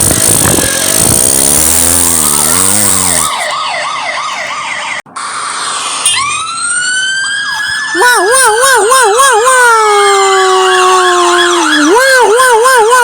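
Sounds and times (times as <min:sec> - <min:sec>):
siren wail: 0:00.0 - 0:13.0
fast yelping police siren: 0:03.1 - 0:05.0, 0:06.2 - 0:13.0.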